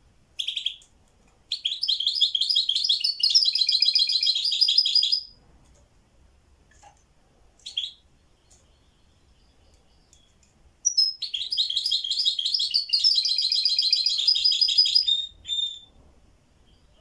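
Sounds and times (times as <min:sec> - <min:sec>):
songbird singing rapid high notes: 0:01.6 - 0:05.3, 0:10.8 - 0:15.8.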